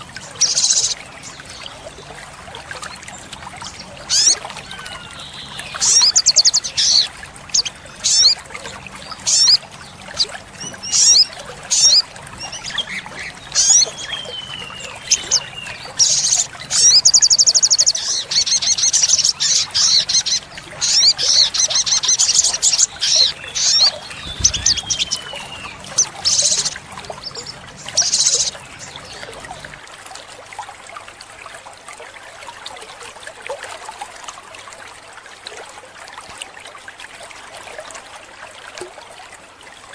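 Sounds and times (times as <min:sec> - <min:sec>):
sunbird singing: 0:04.1 - 0:08.4, 0:09.1 - 0:29.6.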